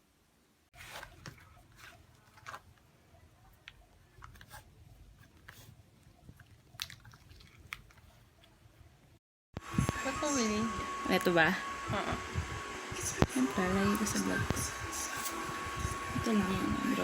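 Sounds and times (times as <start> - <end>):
person chewing and biting: 6.3 - 8.1.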